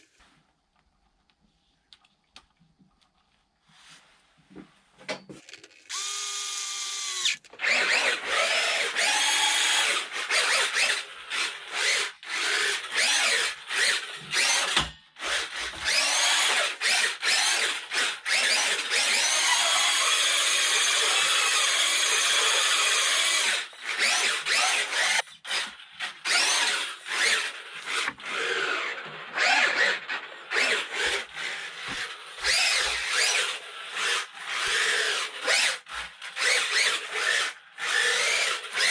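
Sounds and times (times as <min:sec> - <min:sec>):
electric motor whirring: 0:05.5 - 0:10.9.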